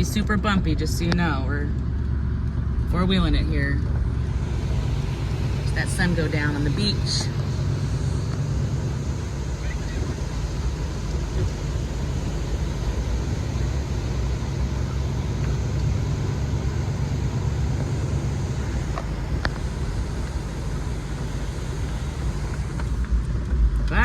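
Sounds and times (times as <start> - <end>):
engine and tyre rumble: 0.0 - 24.0.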